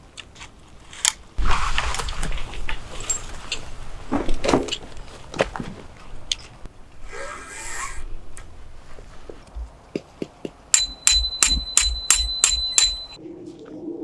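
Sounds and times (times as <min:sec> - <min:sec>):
metal strikes ringing: 0:10.7 - 0:13.2.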